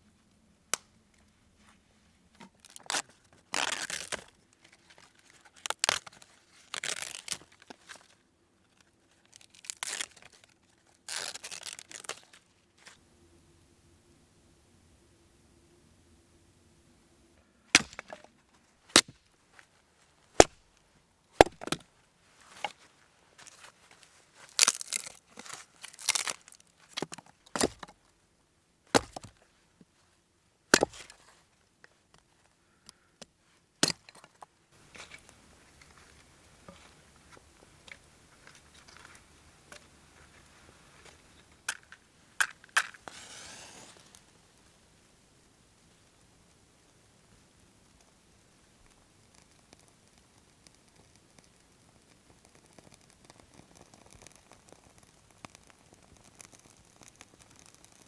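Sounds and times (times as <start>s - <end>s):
dry wood chopping and cracking: 5.6s - 7.8s, 17.7s - 18.3s, 18.9s - 19.3s, 20.4s - 20.7s, 21.4s - 21.9s, 24.5s - 28.0s, 28.9s - 29.4s, 30.7s - 31.2s, 32.8s - 34.4s
small clicks: 48.9s - 58.0s.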